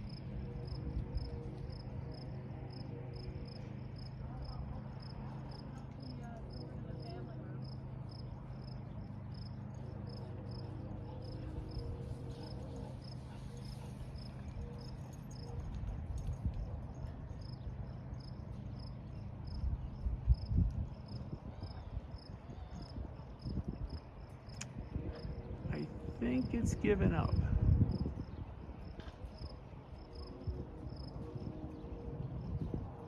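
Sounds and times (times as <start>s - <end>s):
wind buffeting microphone: 19.0s - 33.0s.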